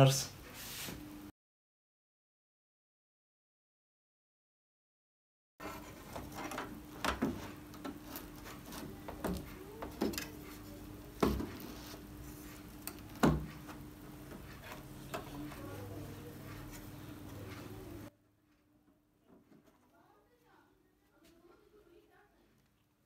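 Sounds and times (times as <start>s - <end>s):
light rubbing and tapping: 5.6s - 18.1s.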